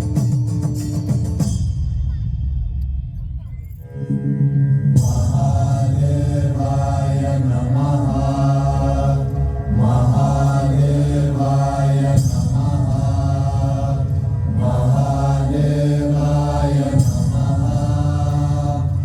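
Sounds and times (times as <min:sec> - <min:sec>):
steady low drone: 0:02.8 - 0:19.0
mantra chanting: 0:04.9 - 0:19.0.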